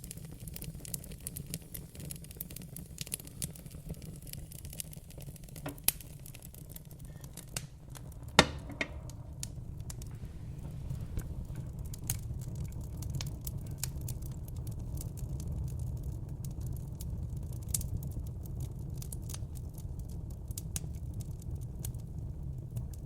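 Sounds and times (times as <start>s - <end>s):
fire low rumble: 0.0s - 23.0s
wood fire crackling: 0.0s - 23.0s
sharp pops: 4.7s - 12.2s.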